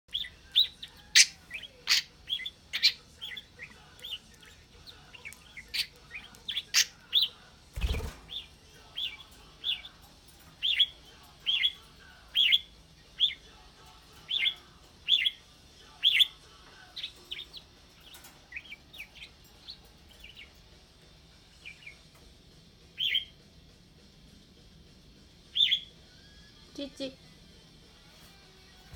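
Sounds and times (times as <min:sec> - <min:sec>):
pet bird chirping: 0:00.1 - 0:10.0, 0:10.6 - 0:13.6, 0:14.2 - 0:20.8, 0:21.5 - 0:22.2, 0:22.9 - 0:23.4, 0:25.5 - 0:27.2.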